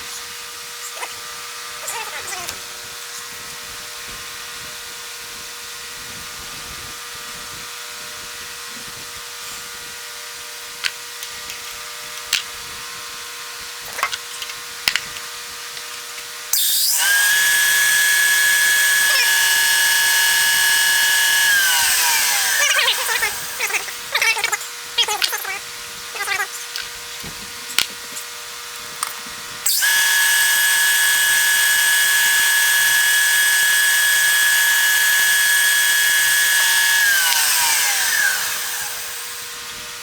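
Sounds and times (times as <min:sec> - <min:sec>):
electric drill whining: 0:16.5 - 0:40.0
sharp clicks: 0:29.7 - 0:39.5.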